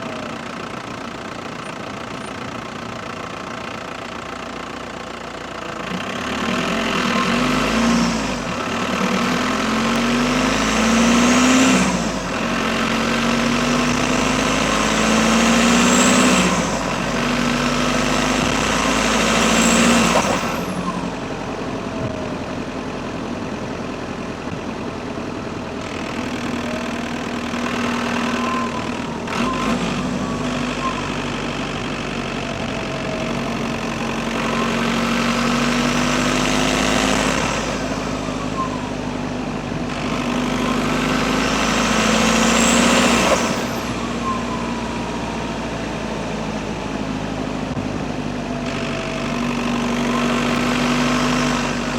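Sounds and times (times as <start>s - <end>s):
diesel car accelerating through gears: 0.0s - 51.9s
turbo whistle: 28.1s - 31.3s, 38.3s - 39.2s.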